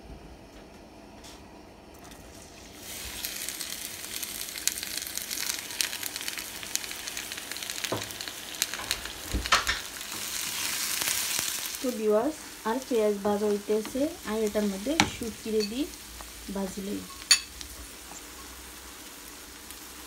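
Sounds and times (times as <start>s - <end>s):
onions sizzling in hot oil: 2.1s - 20.0s.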